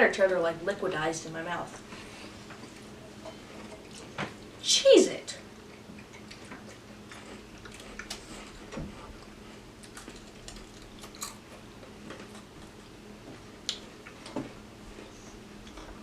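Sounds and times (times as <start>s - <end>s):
faint steady hum: 0.0s - 16.0s
people chewing crunchy crackers: 5.7s - 12.9s.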